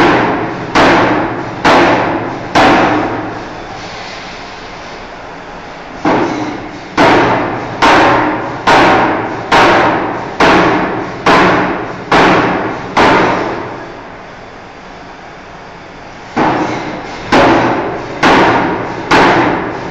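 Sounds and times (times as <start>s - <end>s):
forging hammer striking steel: 0.0s - 3.3s, 6.0s - 13.8s, 16.4s - 19.8s
steady mechanical hum: 0.0s - 19.9s.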